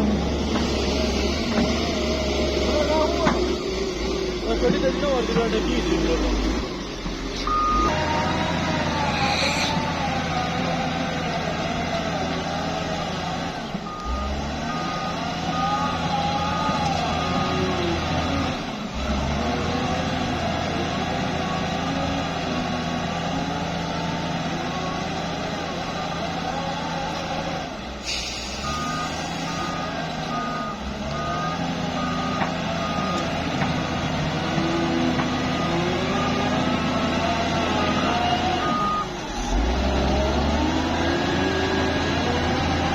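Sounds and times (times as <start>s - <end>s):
diesel construction machinery running: 0.0s - 42.9s
reversing alarm beeping: 4.6s - 10.5s, 13.8s - 17.8s, 28.2s - 40.2s
short hiss: 28.0s - 29.5s.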